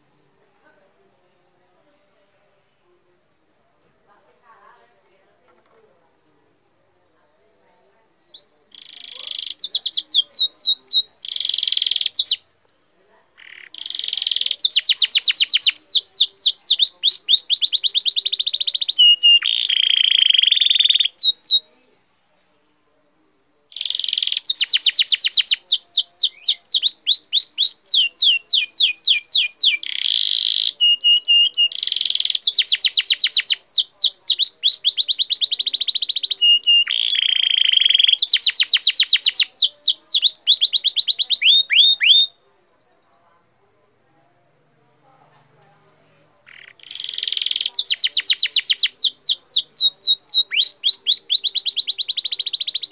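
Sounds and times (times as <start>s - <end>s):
bird song with rapid chirps: 8.2s - 12.4s, 13.4s - 21.6s, 23.7s - 42.4s, 46.5s - 52.9s.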